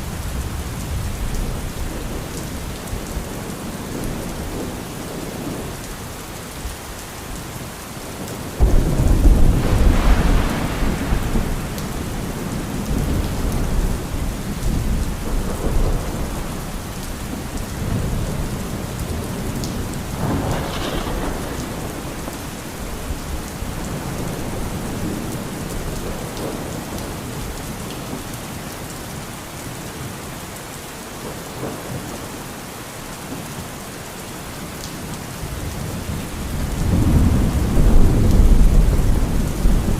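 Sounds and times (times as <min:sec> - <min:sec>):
steady rain falling: 0:00.0 - 0:39.9
thunder rumbling: 0:08.2 - 0:27.5, 0:35.5 - 0:39.9.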